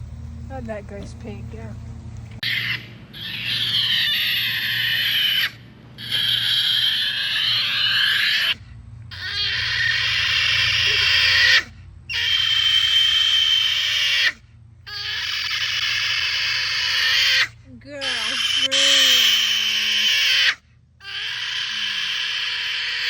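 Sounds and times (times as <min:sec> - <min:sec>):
pig squealing: 0:02.4 - 0:23.0.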